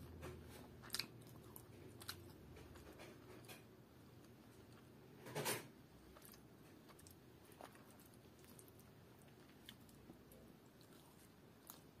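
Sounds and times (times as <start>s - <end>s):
faint chewing: 0.0s - 12.0s.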